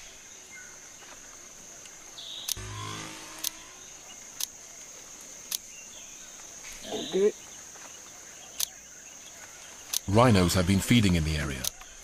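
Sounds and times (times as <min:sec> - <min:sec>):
insects droning: 0:00.0 - 0:12.0
sharp clicks: 0:04.4 - 0:04.6, 0:09.9 - 0:10.1.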